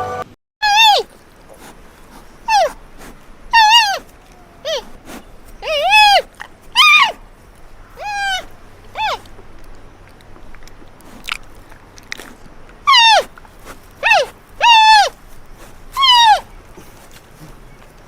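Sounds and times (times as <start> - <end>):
animal high cries: 0.6 - 1.1, 2.5 - 2.8, 3.5 - 7.2, 7.9 - 9.3, 12.9 - 13.3, 14.0 - 15.2, 15.9 - 17.0.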